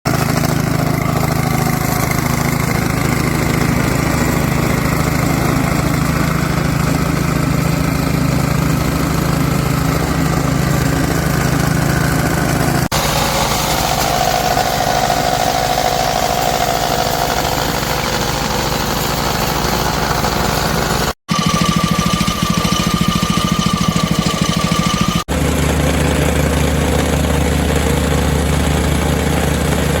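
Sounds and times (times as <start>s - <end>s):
plate compactor engine running: 0.1s - 30.0s
steel plate vibrating: 21.3s - 25.2s.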